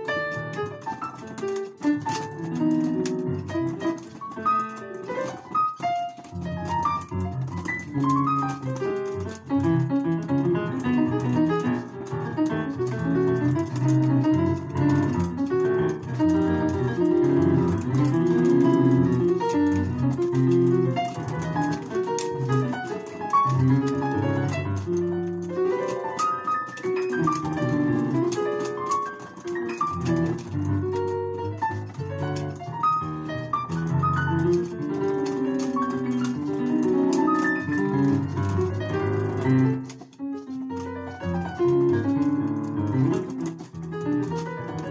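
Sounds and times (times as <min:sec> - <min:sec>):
piano playing quick notes: 0:00.0 - 0:44.9.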